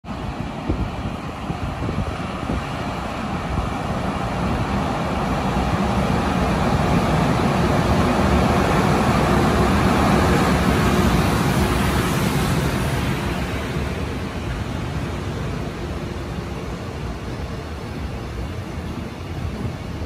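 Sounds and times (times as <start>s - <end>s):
freight train wheels rumbling on rail: 0.0s - 20.0s.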